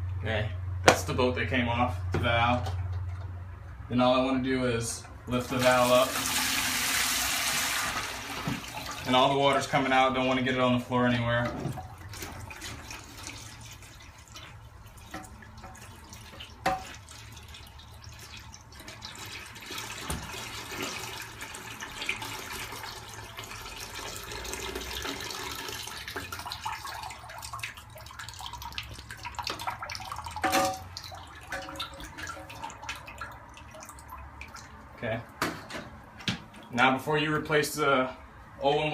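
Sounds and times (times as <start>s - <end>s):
water draining and splashing: 5.3s - 10.6s, 11.6s - 36.8s.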